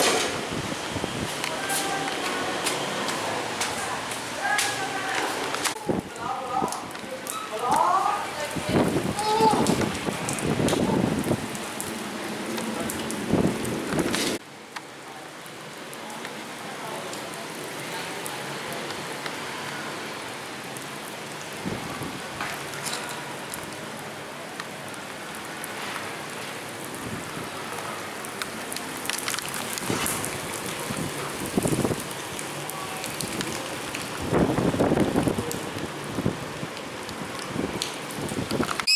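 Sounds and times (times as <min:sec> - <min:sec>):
steady rain falling: 0:00.0 - 0:38.9
sharp taps of raindrops: 0:01.2 - 0:14.9, 0:22.4 - 0:23.8, 0:28.2 - 0:38.9.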